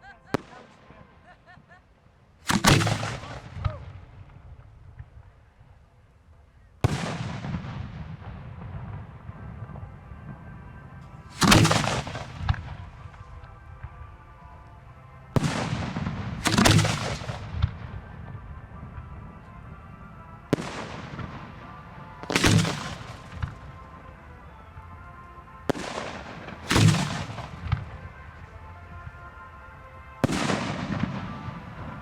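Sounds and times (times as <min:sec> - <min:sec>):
fireworks bangs and booms: 0:06.8 - 0:14.1, 0:15.4 - 0:32.0.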